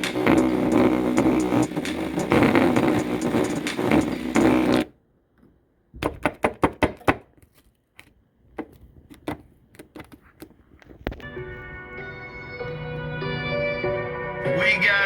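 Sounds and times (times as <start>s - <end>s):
bass-boosted audio through speaker: 0.0s - 4.9s.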